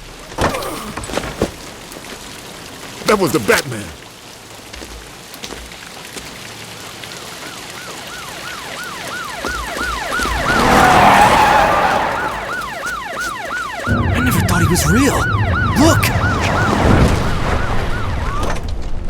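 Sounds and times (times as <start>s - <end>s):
police siren yelping: 7.8s - 18.7s
rush of noise: 13.9s - 18.3s.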